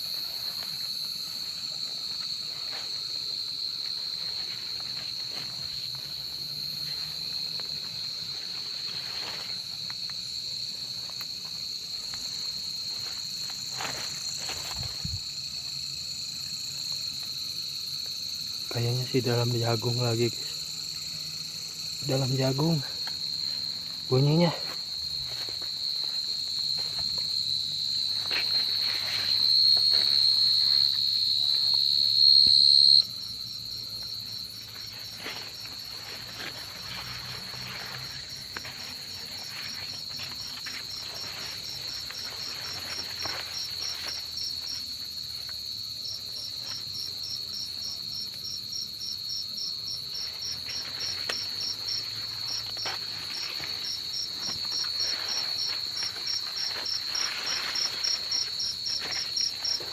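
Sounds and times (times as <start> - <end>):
crickets trilling: 0.0 - 59.9
pulsing cricket chirp: 0.0 - 59.9.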